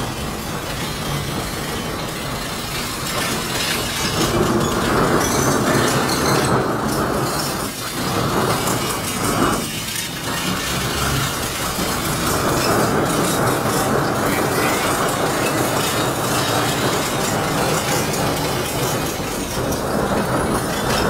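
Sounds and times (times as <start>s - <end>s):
train wheels on rails: 0.0s - 21.0s.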